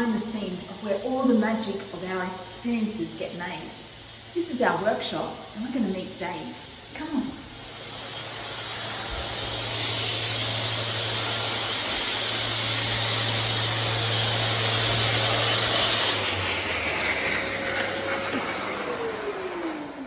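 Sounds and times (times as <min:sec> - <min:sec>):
electric workshop machine running: 0:07.4 - 0:20.0.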